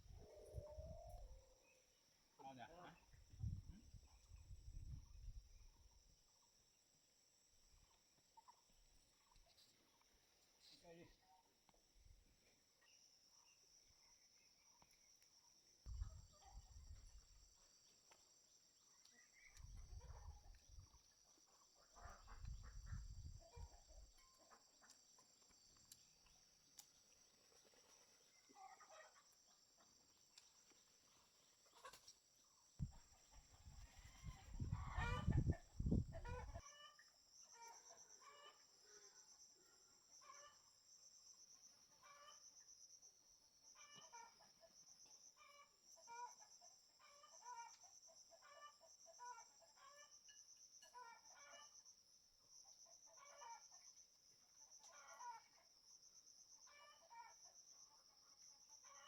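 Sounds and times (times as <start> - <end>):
insects chirring: 0.0 - 59.0
chickens clucking: 0.2 - 1.2, 32.9 - 37.0.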